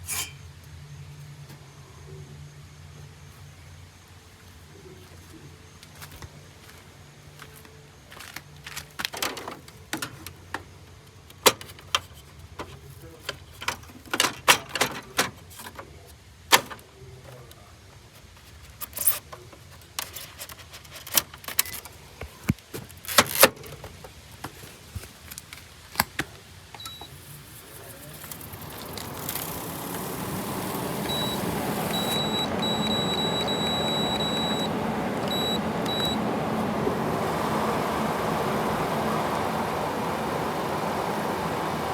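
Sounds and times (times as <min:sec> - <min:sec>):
air conditioner fan rushing: 0:26.9 - 0:41.9
thin high tone: 0:26.9 - 0:41.9.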